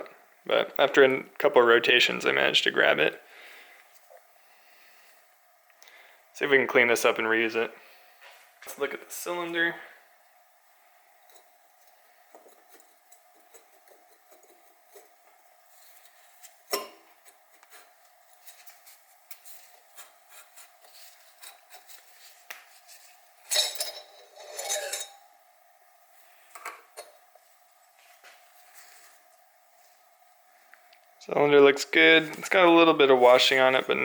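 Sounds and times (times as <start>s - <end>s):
metal on metal clatter: 23.4s - 25.2s.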